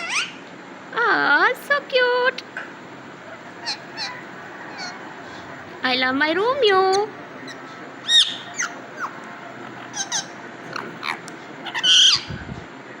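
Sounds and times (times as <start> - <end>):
harsh parrot call: 0.0 - 0.4, 3.4 - 5.6, 6.8 - 12.5
parrot whistling and chirping: 0.0 - 0.4, 3.6 - 5.0, 6.9 - 12.4.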